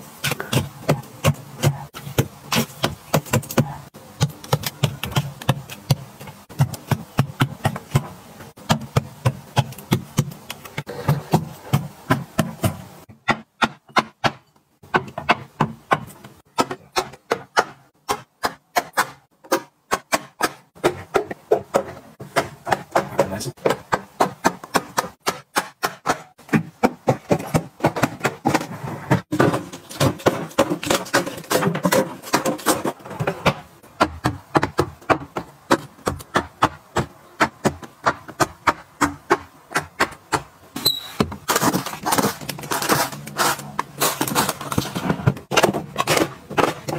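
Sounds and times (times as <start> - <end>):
hard items clacking: 19.5 - 46.9.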